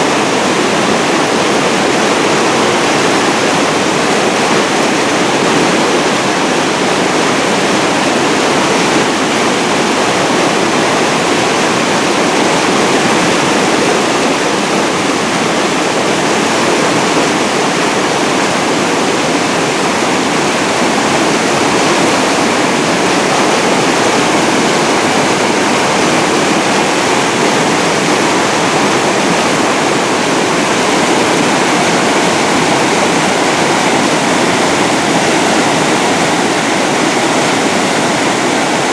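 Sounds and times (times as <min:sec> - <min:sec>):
water pouring over a dam: 0:00.0 - 0:38.9.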